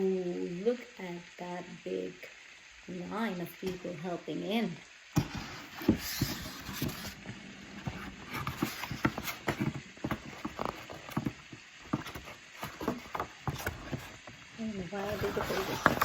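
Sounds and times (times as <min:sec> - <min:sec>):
pages knocking: 0:05.2 - 0:14.4, 0:15.0 - 0:16.0
picture book being handled: 0:05.2 - 0:16.0.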